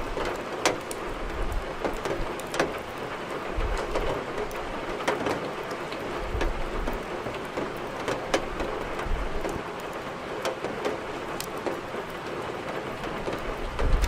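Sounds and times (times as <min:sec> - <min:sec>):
firewood crackling: 0:00.0 - 0:14.0
rain hiss: 0:00.0 - 0:14.0.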